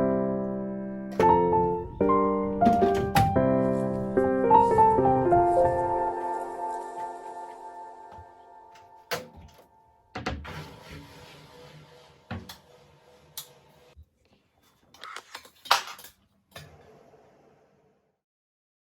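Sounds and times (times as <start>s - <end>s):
soft piano music: 0.0s - 9.9s.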